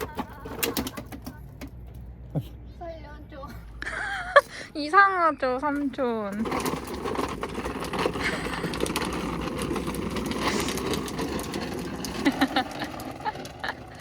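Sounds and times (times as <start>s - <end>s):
toy motor whirring: 6.4s - 14.0s.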